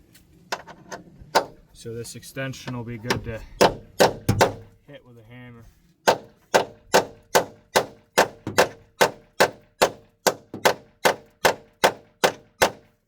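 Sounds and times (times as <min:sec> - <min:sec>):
hammer striking metal: 0:03.1 - 0:04.7.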